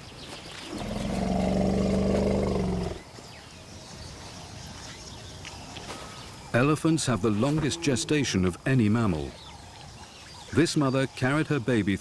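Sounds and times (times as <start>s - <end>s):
elephant rumbling call: 0.7s - 3.0s.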